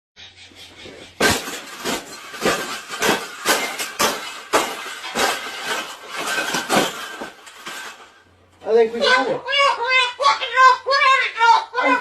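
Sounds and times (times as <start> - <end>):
sharp clanks: 1.1 - 8.2.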